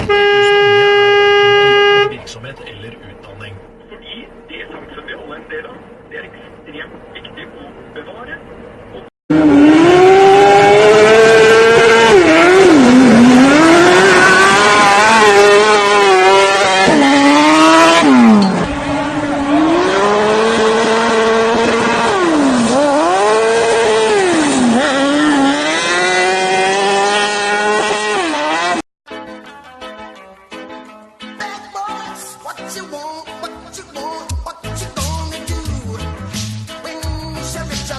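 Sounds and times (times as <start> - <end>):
vehicle engine revving: 9.3 - 28.8.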